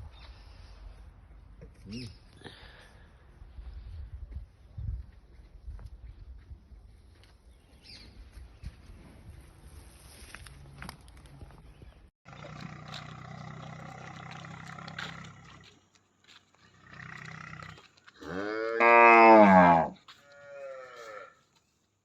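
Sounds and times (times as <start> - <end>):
cow mooing: 17.1 - 21.3.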